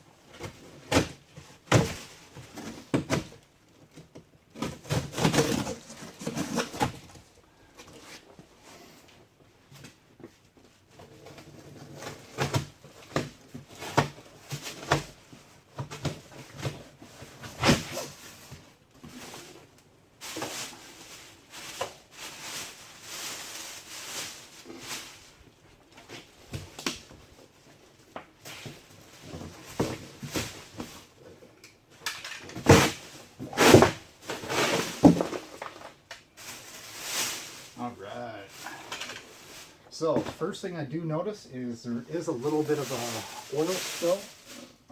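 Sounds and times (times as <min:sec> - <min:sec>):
cardboard scraping: 0:04.6 - 0:07.3, 0:32.6 - 0:37.8, 0:42.4 - 0:44.9.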